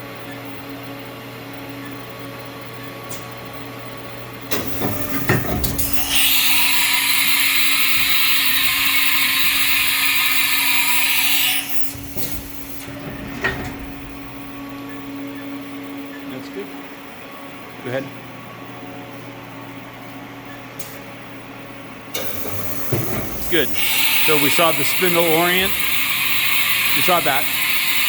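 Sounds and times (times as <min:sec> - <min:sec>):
machining center humming: 0:00.0 - 0:28.0
mechanical knocks and clunks: 0:04.5 - 0:06.8, 0:11.7 - 0:15.5, 0:22.1 - 0:27.0.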